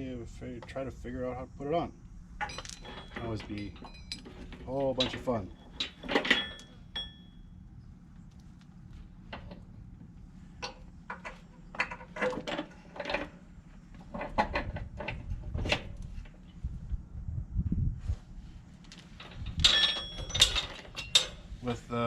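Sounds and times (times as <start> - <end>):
metal on metal clanks: 2.4 - 7.4, 19.2 - 21.5
metal chain rattling: 2.4 - 7.5, 19.1 - 21.5.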